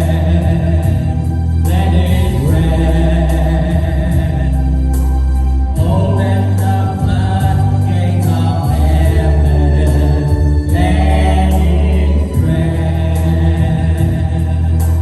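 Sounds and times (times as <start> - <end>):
organ: 0.0 - 15.0
sustained bass notes: 0.0 - 15.0
choir singing: 5.8 - 15.0.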